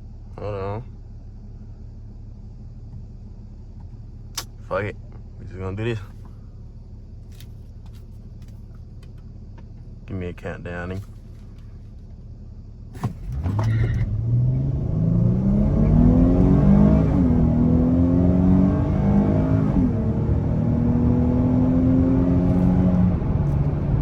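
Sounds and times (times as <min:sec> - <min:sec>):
car engine accelerating: 0:13.0 - 0:24.0.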